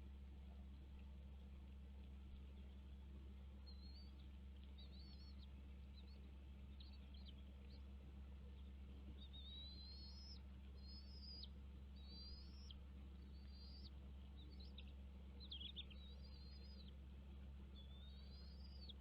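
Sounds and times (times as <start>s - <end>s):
steady low hum: 0.0s - 19.0s
eagle whistled calls: 9.2s - 14.8s, 15.4s - 16.9s, 17.8s - 19.0s.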